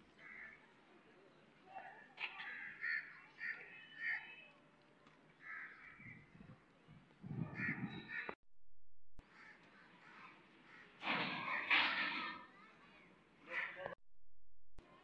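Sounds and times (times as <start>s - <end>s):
birds making harsh calls: 7.3s - 8.4s.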